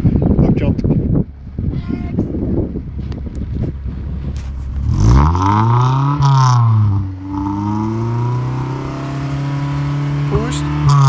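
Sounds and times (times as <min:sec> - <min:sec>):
car engine revving: 0:03.5 - 0:11.0.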